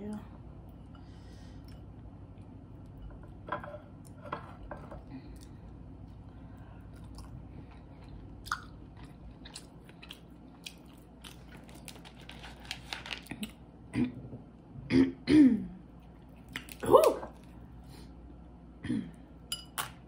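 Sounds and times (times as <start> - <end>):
close chewing with crunches: 6.9 - 13.6
person clearing throat: 14.0 - 14.2, 14.9 - 15.7, 18.8 - 19.2.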